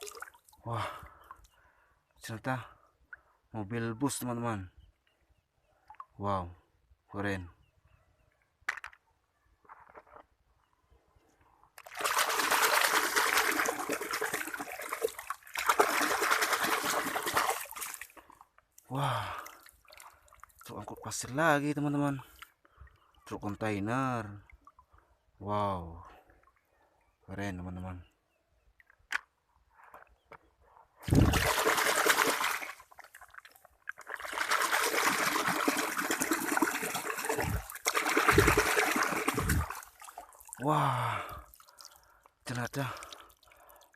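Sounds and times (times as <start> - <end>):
water pouring and splashing: 0.0 - 0.6, 11.8 - 18.4, 31.0 - 40.8, 42.7 - 43.9.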